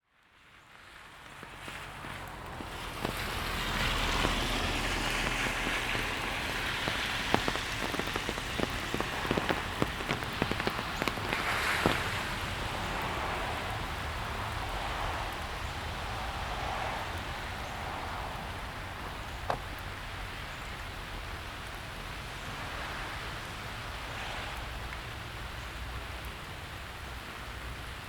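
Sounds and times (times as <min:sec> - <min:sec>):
rain on hard surfaces: 0:00.0 - 0:28.0
sharp close drip taps: 0:01.3 - 0:18.2, 0:18.9 - 0:20.0.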